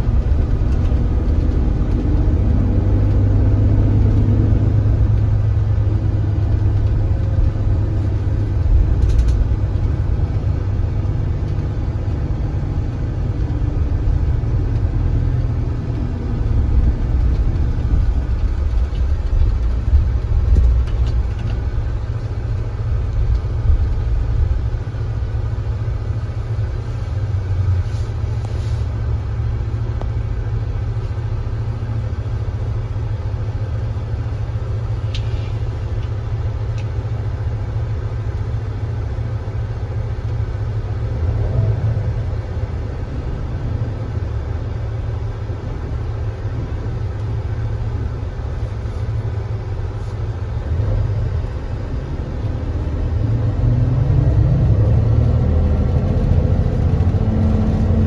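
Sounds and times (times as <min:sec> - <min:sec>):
bus engine rumbling: 0:00.0 - 0:58.0.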